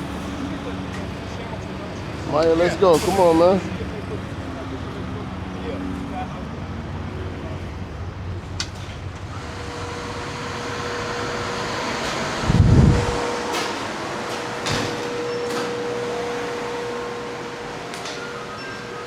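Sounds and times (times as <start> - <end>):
ventilation fan hum: 7.5 - 19.0.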